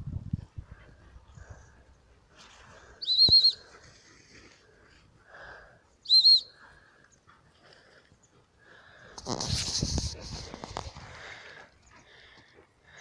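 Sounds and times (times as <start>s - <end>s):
trilling dog whistle blasts: 3.0s - 3.6s, 6.1s - 6.5s.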